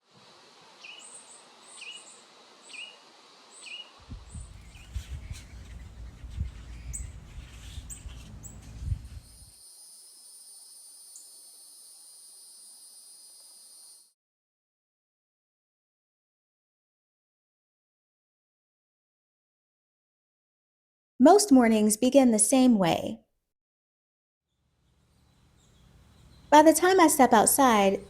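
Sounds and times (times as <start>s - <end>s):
insects droning: 0.1s - 14.1s, 24.7s - 28.0s
bird call notes: 3.6s - 8.9s.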